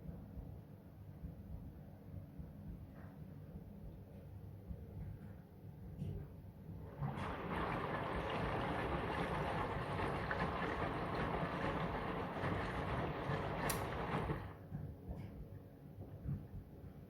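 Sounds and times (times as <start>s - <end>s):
water sloshing in washing machine: 6.8s - 14.6s
washing machine click: 12.4s - 14.4s.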